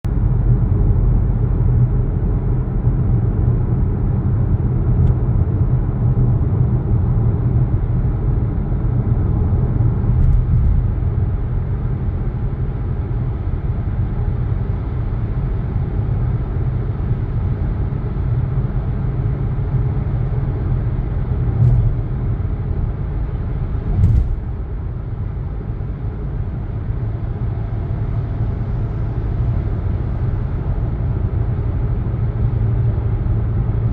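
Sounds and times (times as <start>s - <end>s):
moving vehicle rumble: 0.1s - 33.9s.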